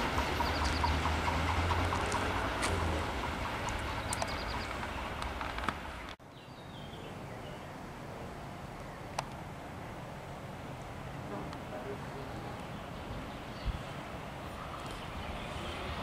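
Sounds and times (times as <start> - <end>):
freight train rumbling on track: 0.0 - 6.2, 11.2 - 16.0.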